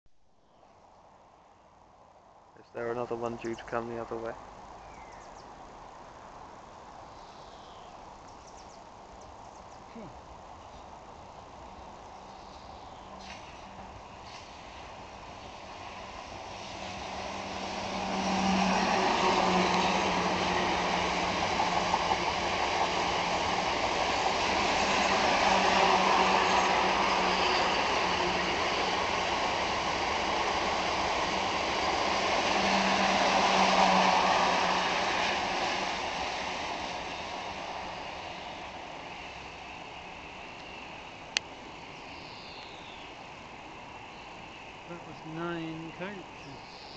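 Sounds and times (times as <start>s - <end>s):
train wheels running on rails: 13.0s - 42.0s.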